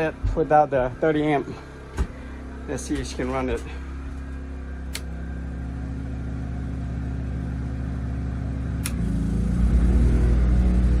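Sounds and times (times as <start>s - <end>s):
air conditioner running: 0.0s - 11.0s
click: 8.8s - 9.0s.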